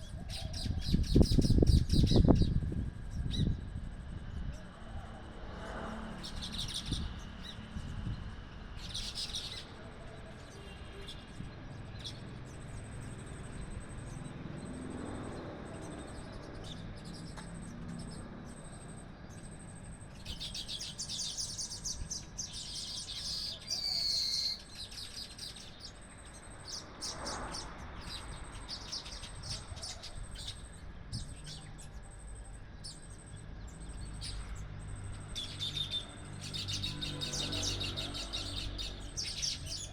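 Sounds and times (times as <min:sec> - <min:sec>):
small birds chirping: 0:06.1 - 0:39.9.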